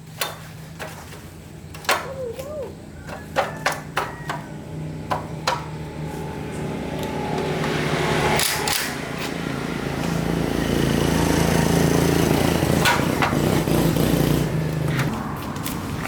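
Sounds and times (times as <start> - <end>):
motorbike engine revving: 4.2 - 16.0.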